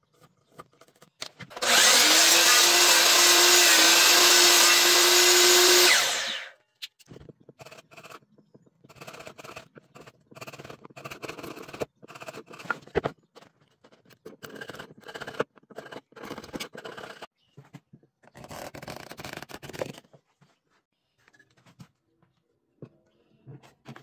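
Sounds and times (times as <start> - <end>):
hand tool scraping wood: 8.8 - 17.3.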